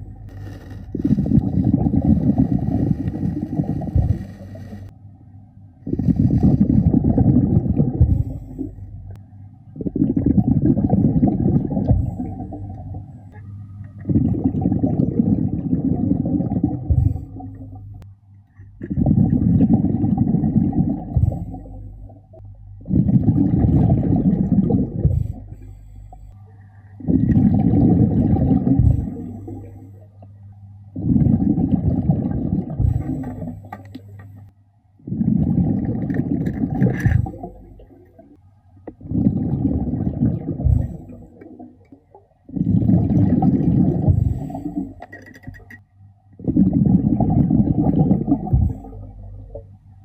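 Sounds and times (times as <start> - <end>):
diver exhaling bubbles underwater: 0.0 - 4.9, 5.9 - 9.2, 9.8 - 13.1, 14.0 - 17.9, 18.8 - 25.8, 27.0 - 30.2, 31.0 - 34.0, 35.0 - 45.2, 46.4 - 49.8
diver inhaling through regulator: 0.0 - 4.9, 5.8 - 7.3, 43.7 - 45.0.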